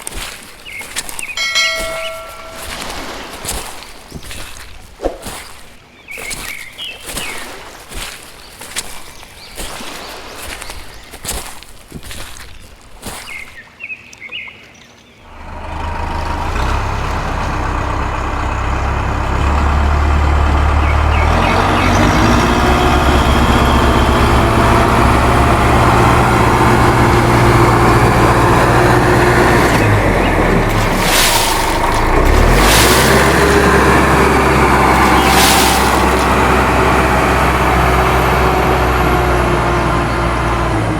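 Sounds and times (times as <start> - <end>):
motor running with deep rumble: 15.3 - 40.9.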